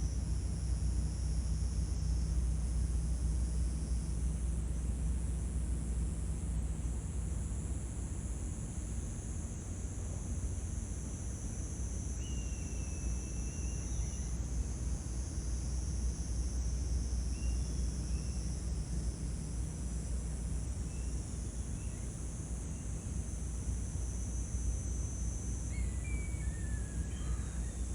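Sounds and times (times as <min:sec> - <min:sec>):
insect chorus: 0:09.1 - 0:27.9.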